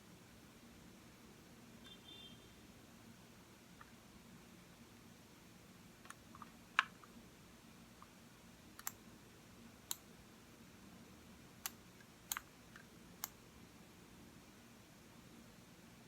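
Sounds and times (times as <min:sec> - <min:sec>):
faint room hum: 0:00.0 - 0:16.0
computer mouse clicking: 0:08.8 - 0:09.0, 0:11.6 - 0:13.4.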